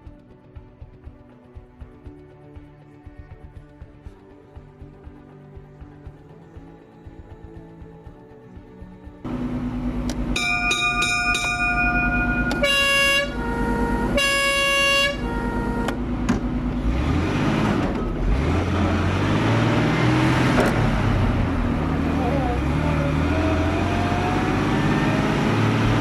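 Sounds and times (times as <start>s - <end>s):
horn blasts: 9.3s - 17.6s
fire engine running: 9.3s - 26.0s
bell ringing rapidly: 10.3s - 13.4s.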